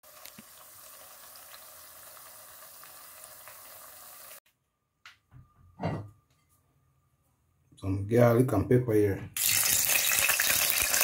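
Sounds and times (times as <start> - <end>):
plantain sizzling in hot oil: 0.0 - 4.4, 9.4 - 11.0.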